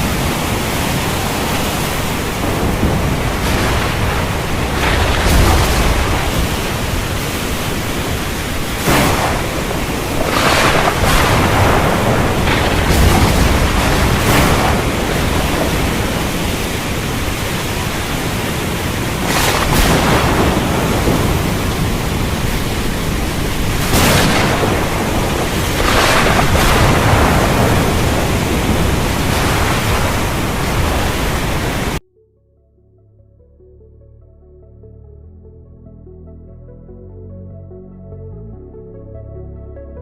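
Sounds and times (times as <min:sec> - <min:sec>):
heavy rain: 0:00.0 - 0:32.0
thunder cracks: 0:00.0 - 0:32.0.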